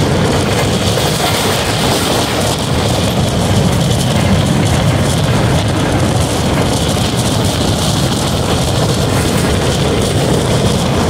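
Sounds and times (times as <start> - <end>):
rushing noise: 0.0 - 11.0
train wheels rumbling on rails: 0.0 - 11.0.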